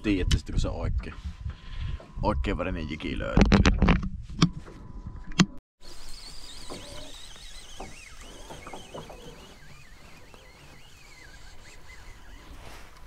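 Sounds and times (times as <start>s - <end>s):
distant bird warbling: 5.8s - 13.0s.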